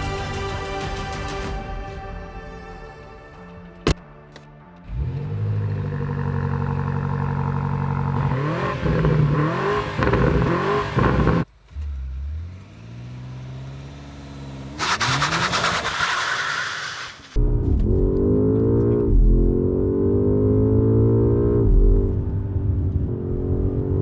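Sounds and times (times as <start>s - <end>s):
car engine revving: 4.9s - 24.0s.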